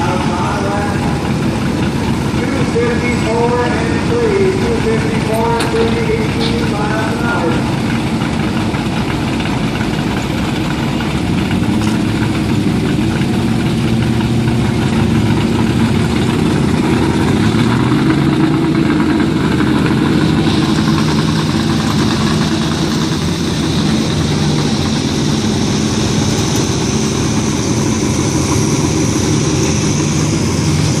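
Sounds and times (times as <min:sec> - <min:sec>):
truck engine running loudly: 0:00.0 - 0:31.0.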